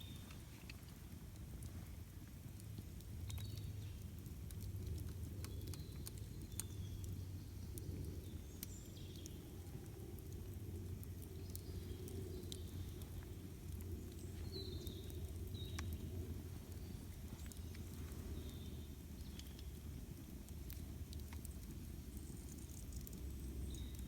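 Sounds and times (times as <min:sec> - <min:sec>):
campfire crackling and popping: 0:00.0 - 0:24.0
low steady rumble: 0:00.0 - 0:24.0
birds chirping: 0:11.2 - 0:20.0.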